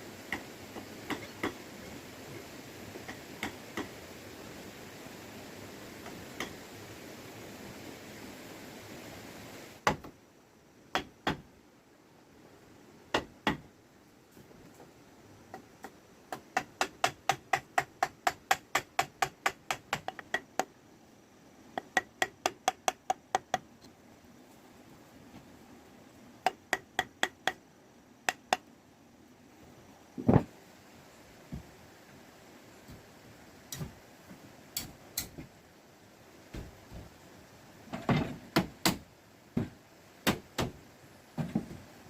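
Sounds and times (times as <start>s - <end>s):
hammering on bamboo and wood: 0.2s - 1.7s, 2.9s - 4.0s, 6.0s - 6.6s, 9.8s - 10.2s, 10.9s - 11.5s, 13.1s - 13.7s, 15.5s - 20.8s, 21.7s - 23.8s, 26.4s - 28.7s, 33.7s - 35.6s, 36.4s - 37.2s, 37.9s - 40.8s.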